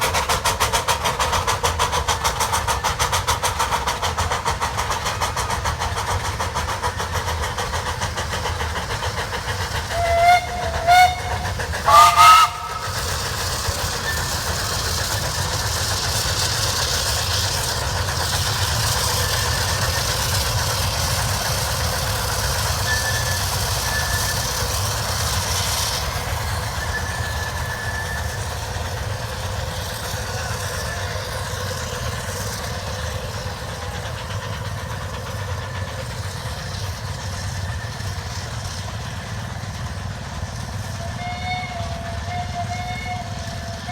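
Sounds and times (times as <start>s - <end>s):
steam hissing: 0.0s - 43.9s
steam locomotives working hard: 0.0s - 43.9s
steam whistle toots and blasts: 9.6s - 15.2s, 22.3s - 28.8s, 40.8s - 43.9s.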